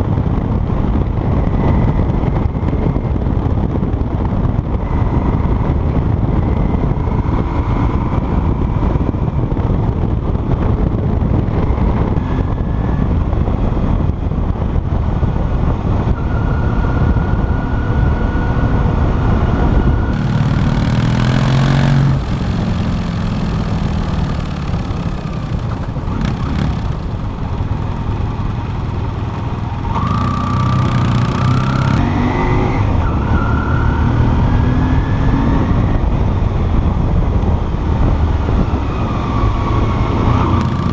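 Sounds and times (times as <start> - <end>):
motorcycle engine accelerating: 20.1 - 32.1, 40.6 - 40.9.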